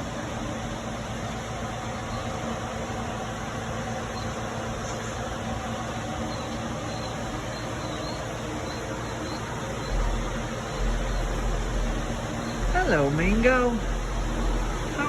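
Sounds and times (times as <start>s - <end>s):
mechanical hum with hiss: 0.0s - 15.0s
faint high chirps: 4.0s - 15.0s.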